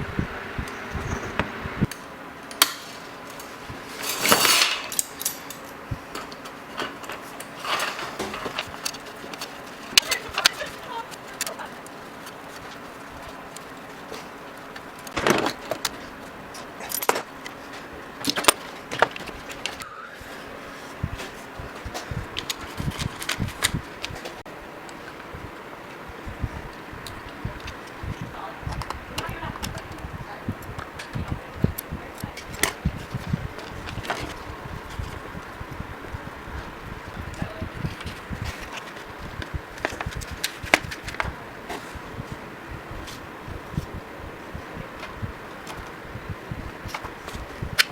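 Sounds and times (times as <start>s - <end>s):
knocks and low thuds: 0.0s - 1.9s, 21.0s - 24.4s, 25.3s - 41.4s, 42.0s - 47.9s
metal tools clinking: 2.5s - 12.9s.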